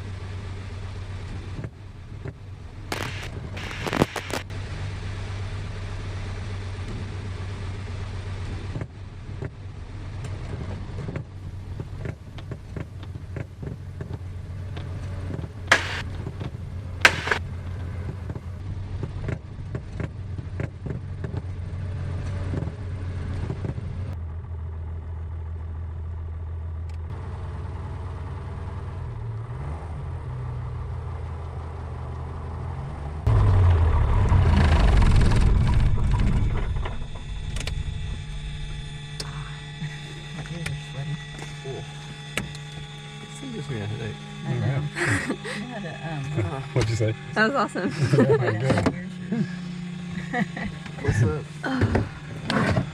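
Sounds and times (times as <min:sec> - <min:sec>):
light aircraft engine hum: 0:00.0 - 0:29.4, 0:30.8 - 0:52.9
sharp clicks: 0:02.9 - 0:04.5, 0:15.7 - 0:16.0, 0:17.0 - 0:17.4.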